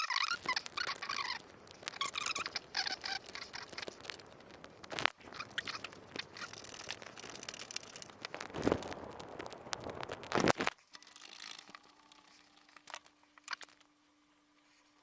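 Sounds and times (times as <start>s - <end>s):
screws driven into wood squeaking: 0.0s - 4.1s
scattered clicks: 0.0s - 13.9s.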